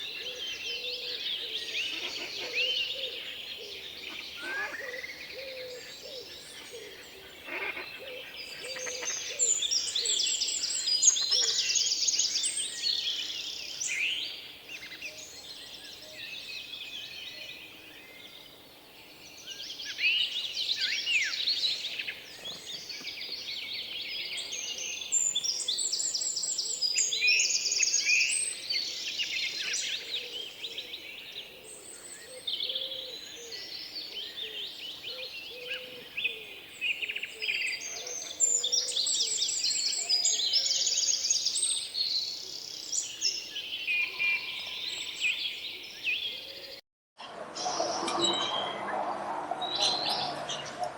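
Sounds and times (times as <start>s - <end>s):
birds chirping and twittering: 0.0s - 50.9s.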